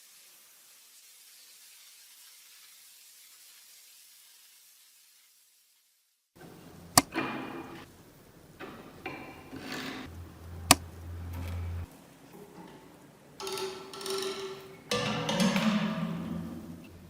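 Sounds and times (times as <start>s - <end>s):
metal scraping and rattling: 9.0s - 11.9s
brief low hum: 10.1s - 11.9s.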